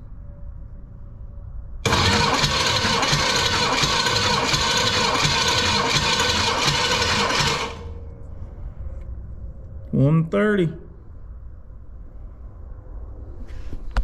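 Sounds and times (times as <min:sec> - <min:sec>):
engine starter cranking: 0:01.8 - 0:08.0.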